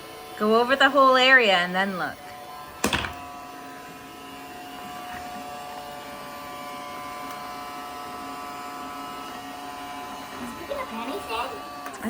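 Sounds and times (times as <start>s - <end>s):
robot vacuum whining hum: 3.6s - 12.0s.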